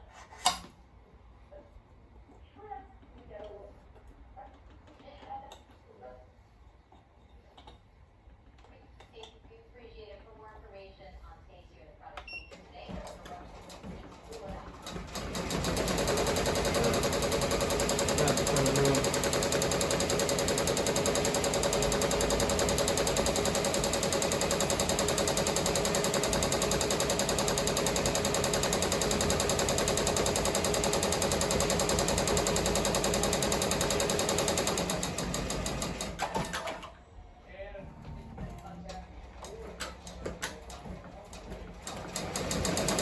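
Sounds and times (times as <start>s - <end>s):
embroidery machine needle chatter: 14.8s - 36.3s, 41.8s - 43.0s.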